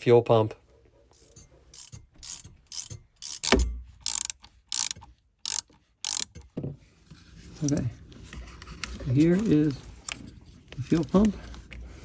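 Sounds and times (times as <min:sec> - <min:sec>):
ratchet wrench clicking: 0:01.2 - 0:06.5.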